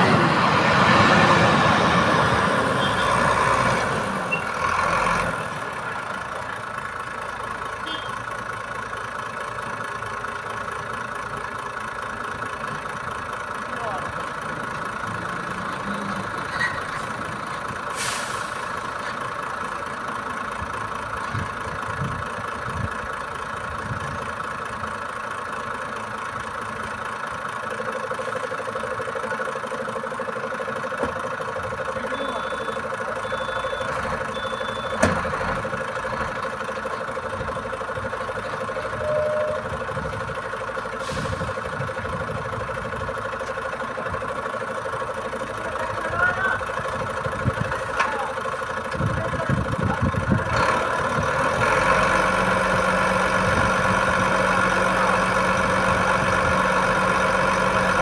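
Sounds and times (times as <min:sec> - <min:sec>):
diesel engine running: 0:00.0 - 0:58.0
short high beeps: 0:32.1 - 0:35.0, 0:39.0 - 0:39.7.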